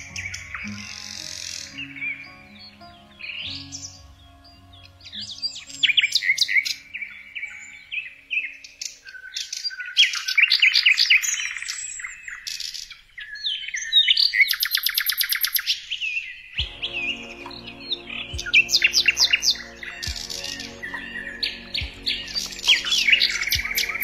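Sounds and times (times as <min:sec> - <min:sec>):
birds chirping and whistling: 0:00.0 - 0:24.0
fast bird trill: 0:14.0 - 0:24.0.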